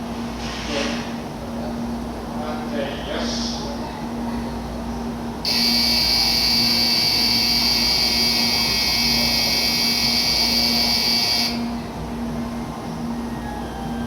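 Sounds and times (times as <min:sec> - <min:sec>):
steady low hum: 0:00.0 - 0:14.0
electronic departure bell ringing: 0:05.5 - 0:11.8.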